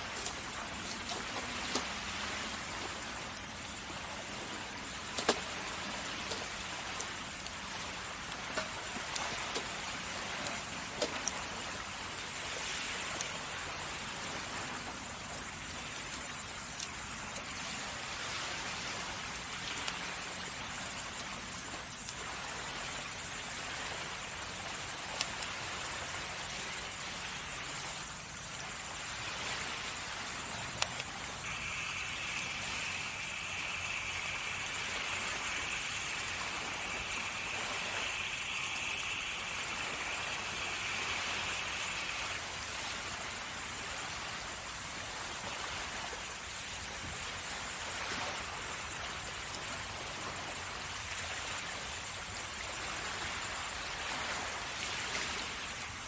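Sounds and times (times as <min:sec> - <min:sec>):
campfire crackling: 0:00.0 - 0:17.4, 0:21.3 - 0:44.3
waves on the shore: 0:00.0 - 0:56.0
campfire crackling and popping: 0:00.1 - 0:11.8.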